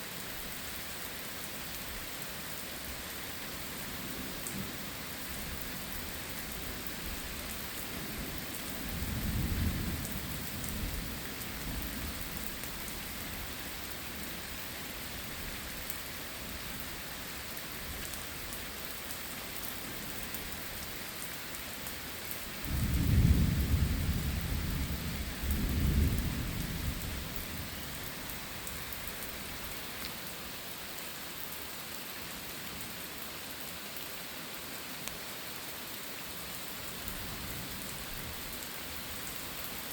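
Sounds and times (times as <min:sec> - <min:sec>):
heavy rain: 0:00.0 - 0:39.9
thunder rumbling: 0:22.7 - 0:27.9.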